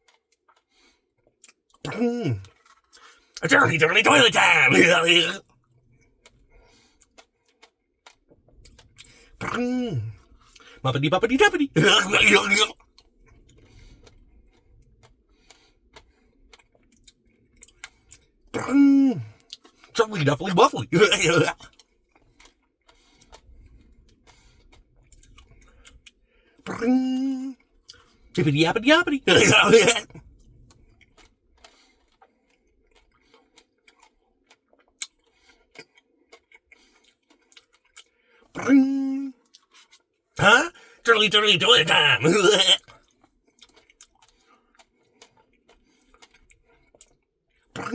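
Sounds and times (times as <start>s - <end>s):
man eating mouth sounds: 1.4s - 5.4s, 8.7s - 12.8s, 18.6s - 21.8s, 25.2s - 30.2s, 33.0s - 42.9s.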